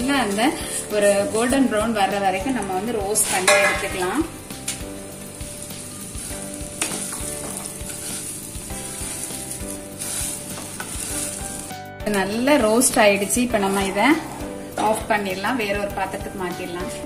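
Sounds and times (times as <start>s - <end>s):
vermicelli sizzling in ghee: 0.0s - 17.0s
wooden spatula scraping and stirring: 5.8s - 11.8s, 13.2s - 15.0s.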